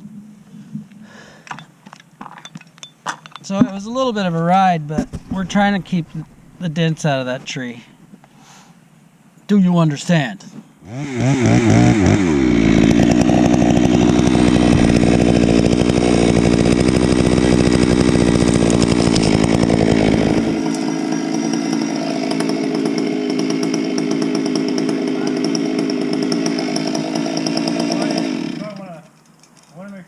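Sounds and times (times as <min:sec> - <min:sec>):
chainsaw at full throttle: 0:10.8 - 0:28.9.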